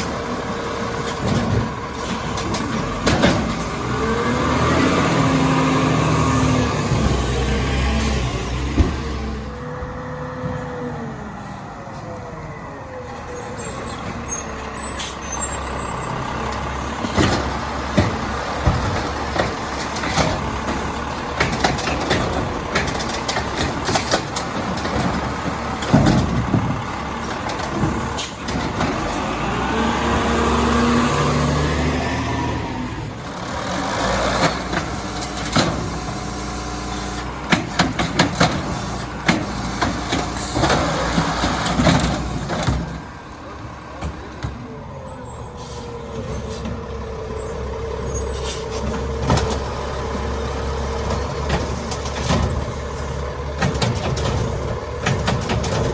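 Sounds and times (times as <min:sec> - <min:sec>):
garbage truck engine revving: 0:00.0 - 0:55.9
metal clanks and bangs: 0:01.0 - 0:04.0, 0:16.5 - 0:29.4, 0:37.0 - 0:43.1, 0:51.0 - 0:55.9.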